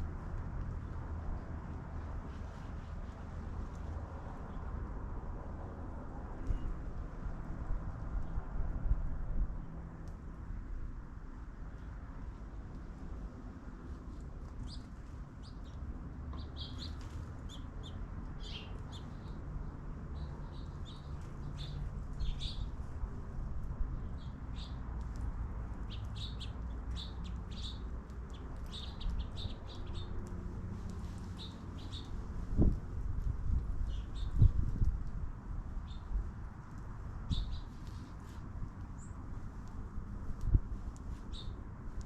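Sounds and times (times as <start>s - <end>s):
small birds chirping: 14.5s - 23.0s, 24.0s - 34.9s, 35.8s - 41.6s.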